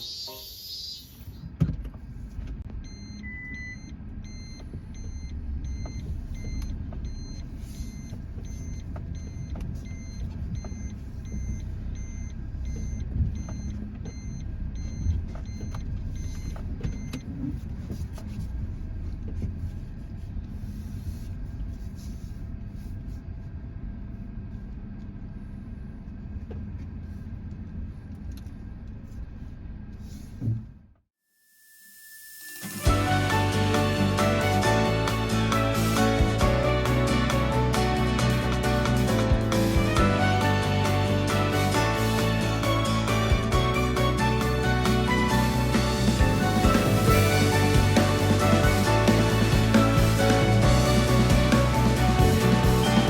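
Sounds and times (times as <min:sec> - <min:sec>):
electronic beep: 0:00.0 - 0:01.5, 0:02.8 - 0:17.2
car engine rumbling: 0:01.4 - 0:30.9, 0:32.9 - 0:53.0.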